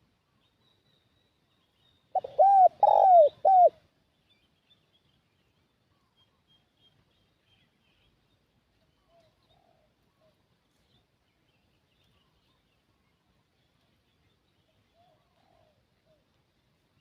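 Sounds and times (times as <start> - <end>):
dove cooing: 2.2 - 3.8, 9.0 - 10.0, 15.0 - 16.2.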